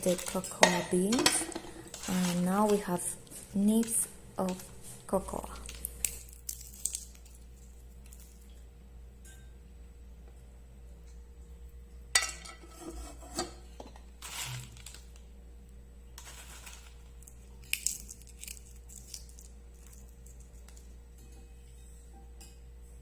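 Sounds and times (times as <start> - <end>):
dishes and utensils clinking: 0.0 - 4.8, 12.2 - 14.4
faint steady hum: 0.0 - 23.0.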